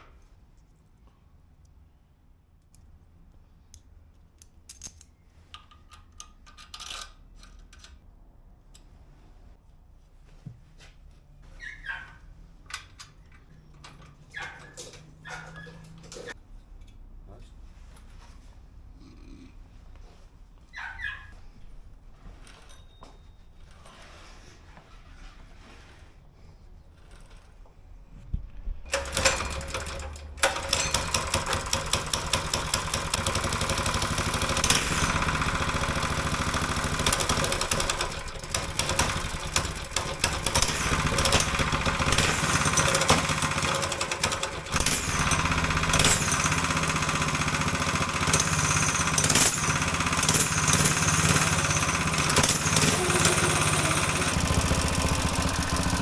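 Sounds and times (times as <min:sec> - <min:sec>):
mini bike engine running: 0:28.9 - 0:56.0.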